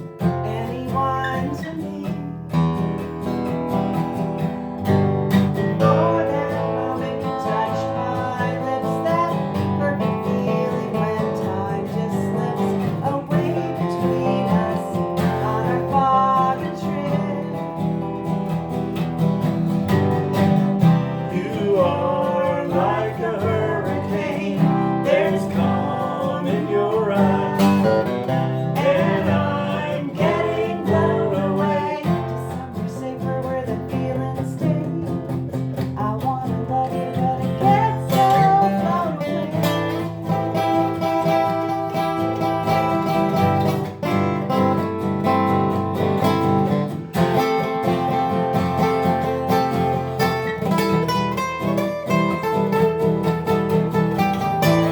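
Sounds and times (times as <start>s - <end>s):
person singing: 0.0s - 2.7s, 5.6s - 18.2s, 20.8s - 43.7s
acoustic guitar strumming: 0.0s - 54.9s.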